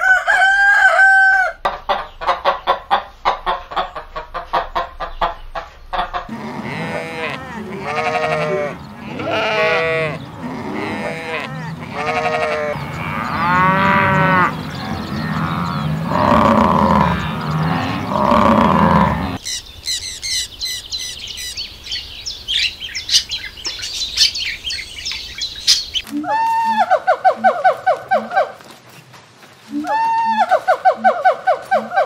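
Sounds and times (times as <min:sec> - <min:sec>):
cattle mooing: 0:06.3 - 0:19.4
budgerigars chirping: 0:11.7 - 0:18.4, 0:19.2 - 0:26.0.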